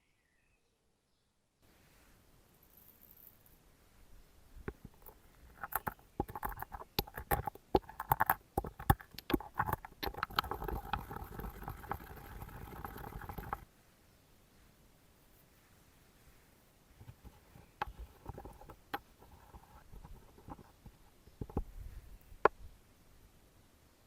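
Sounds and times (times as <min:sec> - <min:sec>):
light hiss: 0:01.6 - 0:05.5
cooking clicks and crackles: 0:04.7 - 0:13.6.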